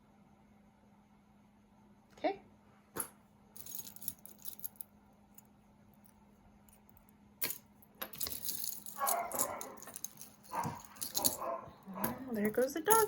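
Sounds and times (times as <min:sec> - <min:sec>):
jewelry clinking and rattling: 0:03.0 - 0:13.0.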